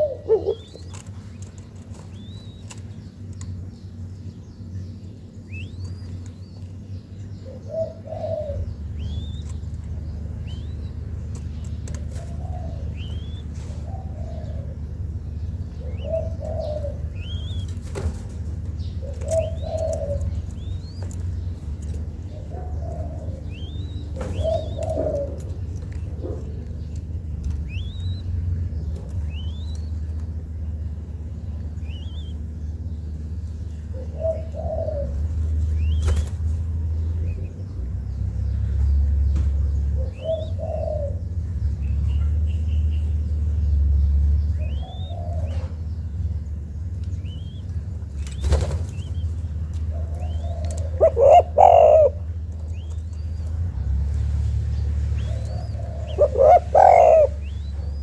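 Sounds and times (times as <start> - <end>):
dove cooing: 0.0 - 1.2, 7.4 - 30.0, 31.2 - 32.6, 33.7 - 37.5, 39.0 - 42.4, 44.5 - 46.6, 48.5 - 53.9, 54.6 - 58.0
low hum: 0.0 - 58.0
small bird chirping: 0.0 - 58.0.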